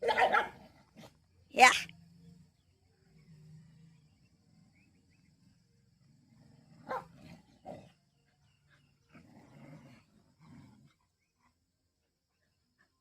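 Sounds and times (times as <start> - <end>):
dog barking: 0.0 - 0.6, 6.8 - 7.2
dogs growling: 0.0 - 11.8.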